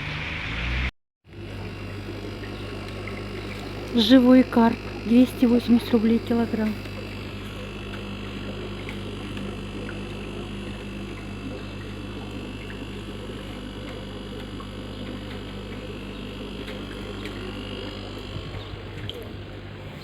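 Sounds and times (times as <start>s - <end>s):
low electrical hum: 1.3s - 20.0s
faint ticks: 2.1s - 4.0s.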